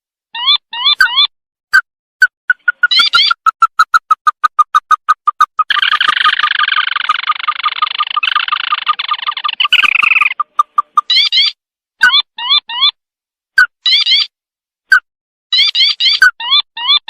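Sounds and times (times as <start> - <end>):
bird piping notes and trill: 0.4 - 13.0, 15.6 - 17.0.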